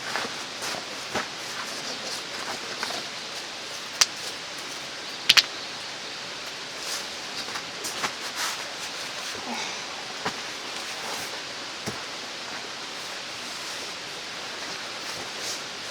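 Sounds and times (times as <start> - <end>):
sharp clicks: 5.3 - 5.5.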